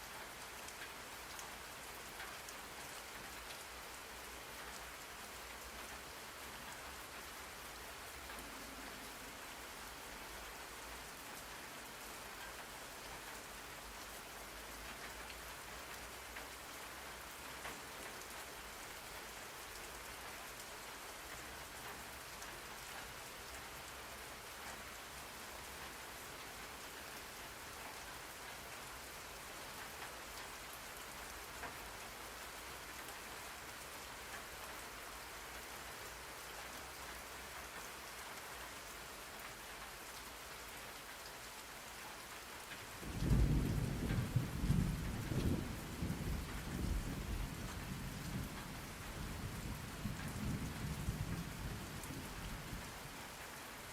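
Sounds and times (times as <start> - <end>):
steady rain falling: 0.0 - 53.9
thunder rumbling: 43.0 - 52.8.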